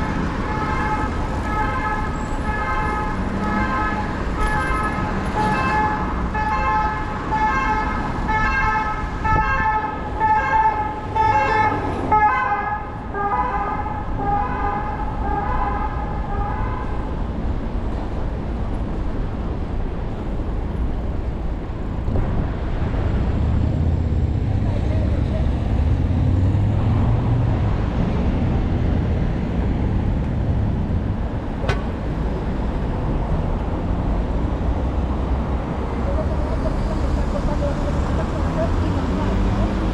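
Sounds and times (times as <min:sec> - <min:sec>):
emergency vehicle siren: 0:00.0 - 0:17.1
road traffic: 0:00.0 - 0:39.9.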